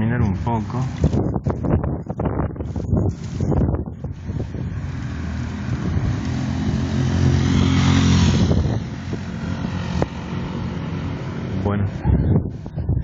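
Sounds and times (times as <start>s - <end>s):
vehicle passing by: 3.3s - 12.6s.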